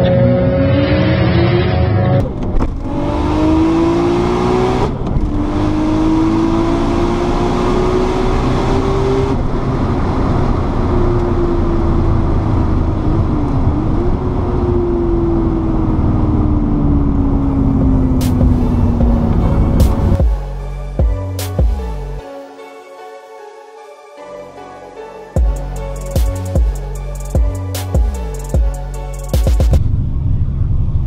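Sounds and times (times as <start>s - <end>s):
car engine revving hard: 2.8s - 10.9s.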